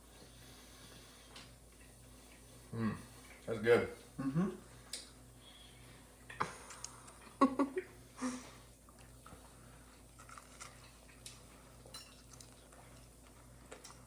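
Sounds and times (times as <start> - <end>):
person chewing: 8.8 - 14.0.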